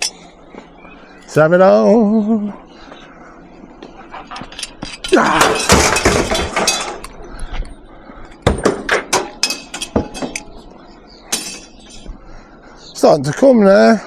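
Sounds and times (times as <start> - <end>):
sharp metal clanks: 4.4 - 7.2, 8.4 - 10.6, 11.3 - 12.1
scrap metal crashing onto truck: 5.0 - 7.1.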